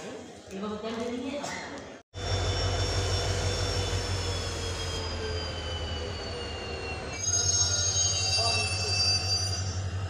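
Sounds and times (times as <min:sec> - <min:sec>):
high wheel squeal: 0:02.2 - 0:10.0.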